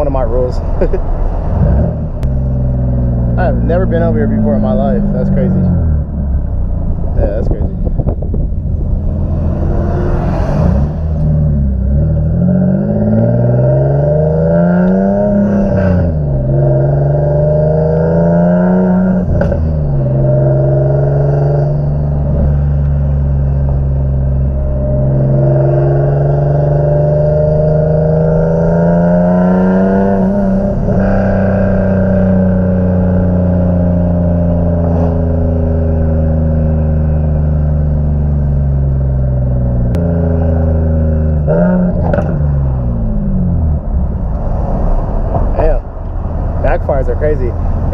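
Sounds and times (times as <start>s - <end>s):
car engine accelerating and shifting: 0.0s - 47.9s
exhaust cracks: 17.9s - 26.9s, 27.5s - 47.9s.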